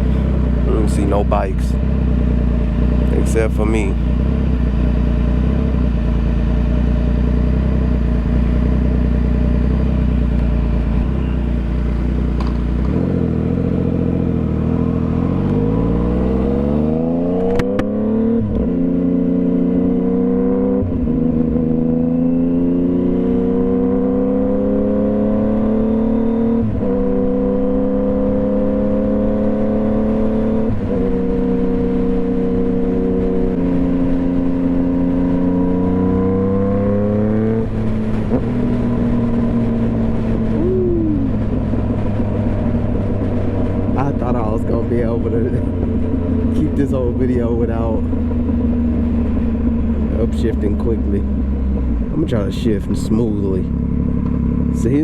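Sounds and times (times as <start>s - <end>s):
motorcycle engine revving and shifting: 0.0s - 55.0s.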